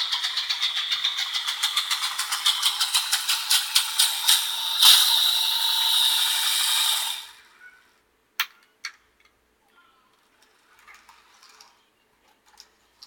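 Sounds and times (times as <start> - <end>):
train running hiss: 0.0 - 7.4
model train wheels clicking: 0.0 - 7.5.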